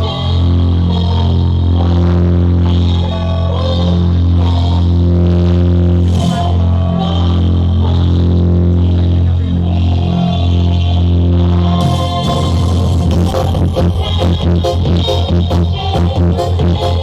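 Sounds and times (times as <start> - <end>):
loud music with deep bass: 0.0 - 17.0.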